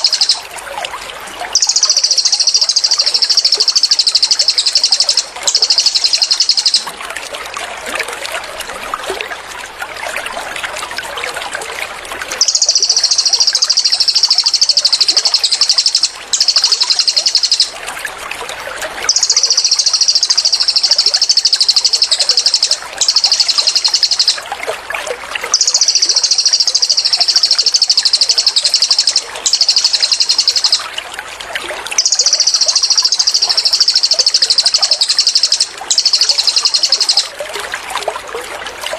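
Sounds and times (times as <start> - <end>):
soft bird chirps: 0.0 - 0.5, 1.6 - 6.9, 12.4 - 17.8, 19.1 - 24.4, 25.6 - 30.9, 32.0 - 37.3
songbird high-pitched trills: 0.0 - 0.6, 1.5 - 6.9, 12.4 - 17.8, 19.1 - 24.5, 25.5 - 30.9, 31.9 - 37.4
trickling water: 0.0 - 38.9.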